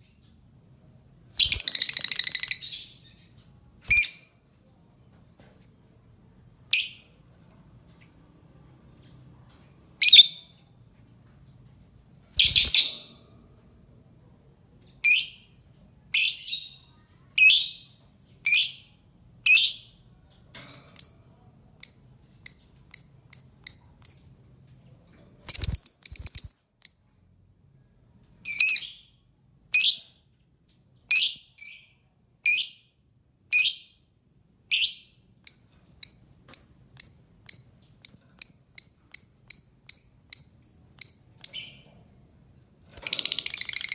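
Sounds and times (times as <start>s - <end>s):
lovebird chirping: 1.4s - 4.3s, 6.7s - 7.1s, 10.0s - 10.6s, 12.4s - 13.1s, 21.0s - 27.1s, 34.7s - 41.9s, 43.0s - 43.9s.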